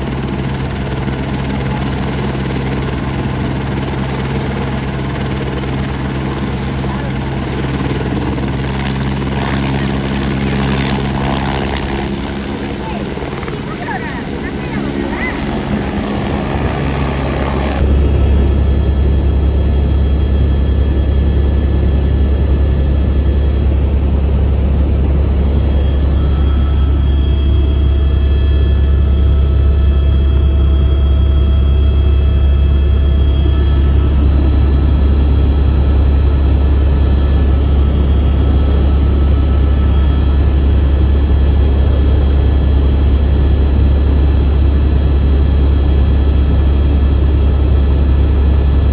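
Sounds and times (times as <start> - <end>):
helicopter rotor and engine drone: 0.0 - 48.9.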